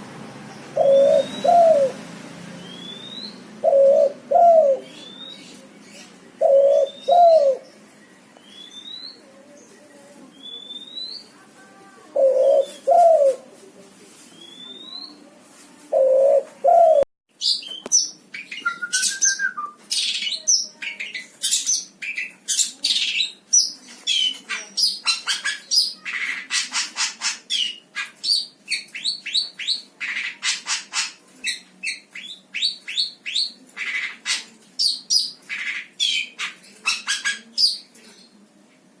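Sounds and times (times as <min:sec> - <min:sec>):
songbird chirps and trills: 0:00.4 - 0:13.4
low bird calls: 0:00.7 - 0:02.0, 0:06.4 - 0:07.7.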